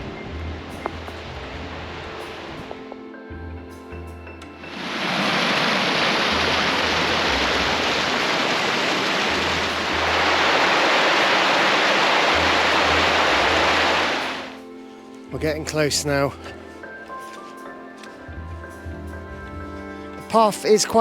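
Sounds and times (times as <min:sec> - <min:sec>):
background music with bass: 0:00.0 - 0:21.0
river water over rocks: 0:04.7 - 0:14.6.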